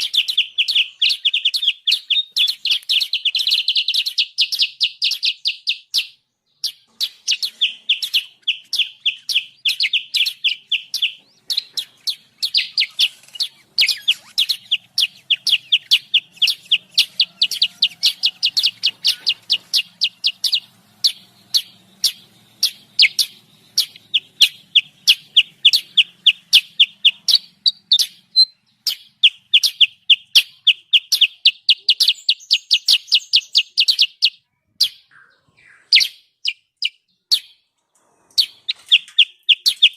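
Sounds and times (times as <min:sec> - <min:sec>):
bird sharp high chirps: 0:00.0 - 0:39.9.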